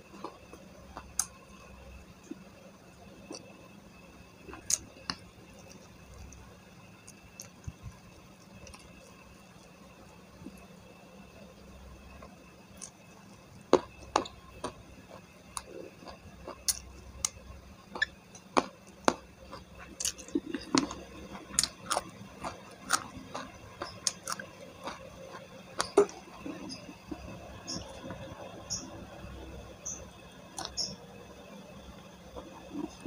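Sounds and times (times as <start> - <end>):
person chewing food: 0.0 - 1.6, 4.4 - 9.7, 12.1 - 28.4, 30.6 - 30.9, 32.3 - 33.0.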